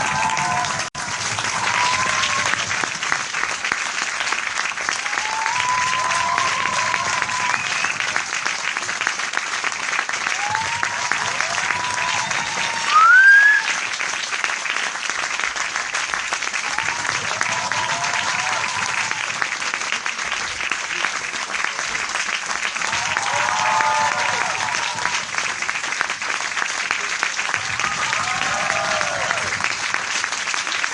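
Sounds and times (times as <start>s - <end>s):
voices cheering: 0.0s - 2.9s, 4.9s - 8.4s, 10.2s - 13.8s, 16.6s - 19.6s, 22.8s - 25.5s, 27.4s - 29.9s
crowd applause: 0.0s - 30.9s
rising whistle: 12.6s - 13.7s.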